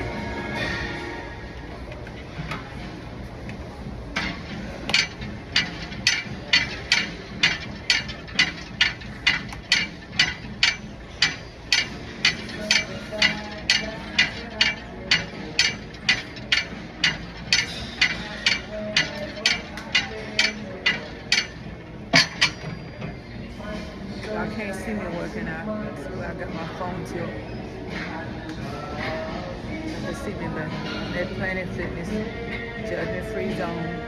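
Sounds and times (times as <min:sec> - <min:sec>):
low steady hum: 0:00.0 - 0:34.0
exercise machine clicking: 0:01.9 - 0:23.7.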